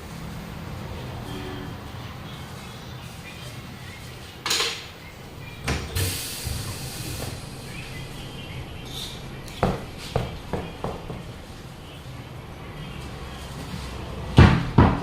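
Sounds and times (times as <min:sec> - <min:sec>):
short hiss of air: 0:06.0 - 0:07.7.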